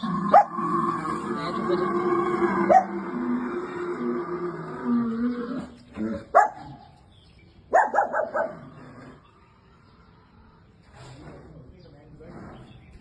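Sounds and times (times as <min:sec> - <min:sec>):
dog barking: 0:00.3 - 0:00.5, 0:02.7 - 0:02.9, 0:06.3 - 0:06.8, 0:07.7 - 0:08.6.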